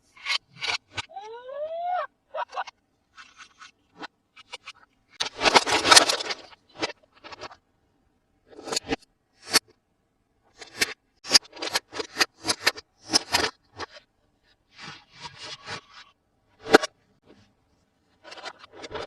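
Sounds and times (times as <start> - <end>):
toy packaging scratching and clicking: 0.1 - 1.1, 3.1 - 7.6, 10.6 - 14.1, 14.8 - 16.9, 18.2 - 19.0.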